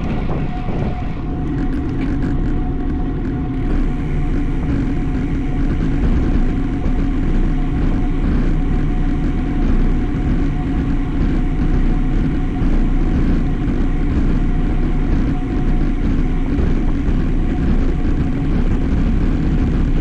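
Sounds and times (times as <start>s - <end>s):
wind rushing: 0.0s - 1.7s
road noise from moving bike: 0.0s - 20.0s.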